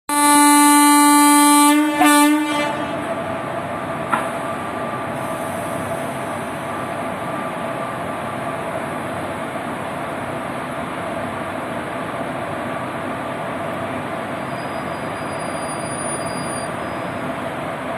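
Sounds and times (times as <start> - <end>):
locomotive horn blasts: 0.1 - 3.2
train rumbling: 0.1 - 17.9.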